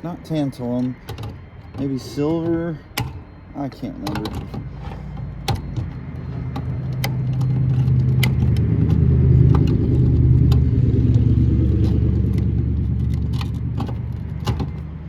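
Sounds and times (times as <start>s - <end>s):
vehicle engine passing: 4.7s - 15.0s.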